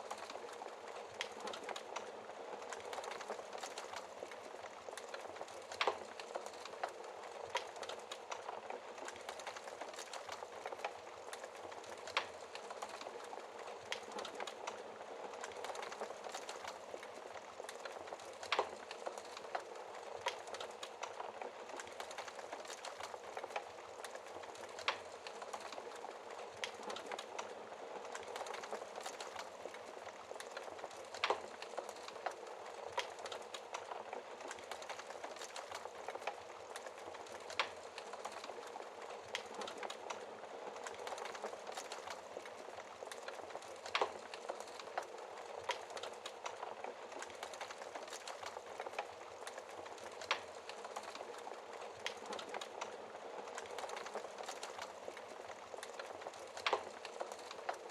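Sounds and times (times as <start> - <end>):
fire crackling in fireplace: 0.0 - 57.9.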